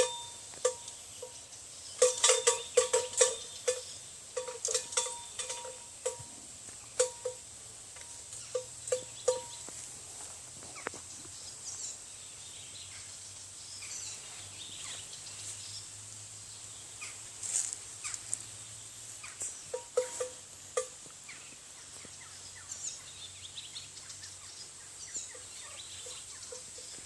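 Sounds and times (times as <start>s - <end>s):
livestock bells clanking: 0.0s - 9.8s, 19.7s - 21.1s, 25.3s - 27.0s
bird calls: 10.7s - 15.9s, 19.2s - 27.0s.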